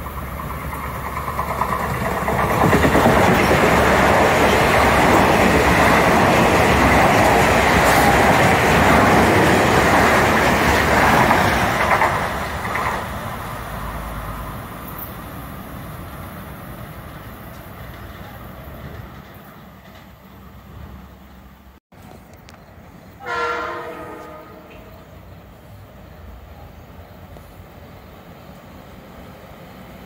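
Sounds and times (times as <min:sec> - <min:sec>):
wheels clicking over rail joints: 0:00.0 - 0:22.8
train wheels rushing on rail: 0:00.0 - 0:30.0.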